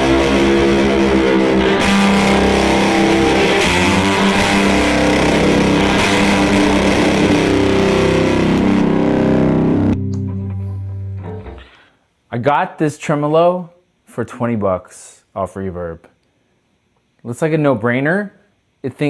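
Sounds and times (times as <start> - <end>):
distorted electric guitar chords: 0.0 - 11.8.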